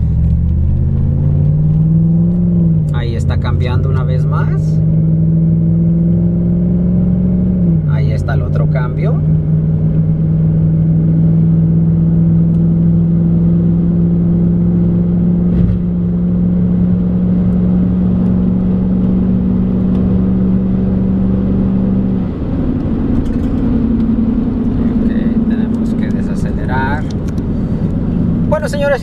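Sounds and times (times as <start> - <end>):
car engine humming while driving: 0.0 - 29.0
brief thump: 15.5 - 15.9.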